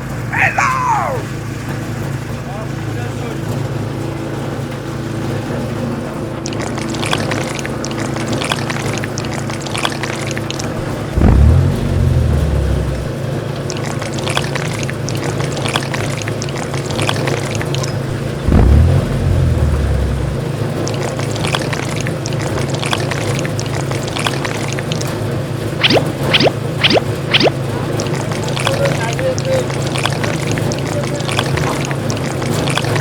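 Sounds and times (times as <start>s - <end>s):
pouring trickling sound: 6.4s - 11.6s, 12.9s - 18.4s, 20.4s - 33.0s
deep surge: 10.8s - 13.3s, 18.0s - 21.1s.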